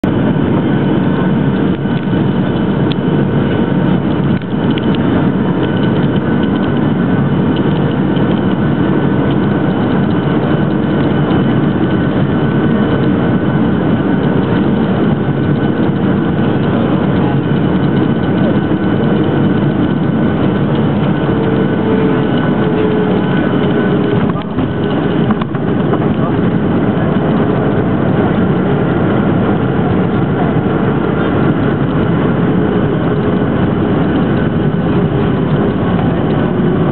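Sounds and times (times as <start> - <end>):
jet engines and airflow rushing: 0.0 - 36.9
whining tones: 0.0 - 36.9.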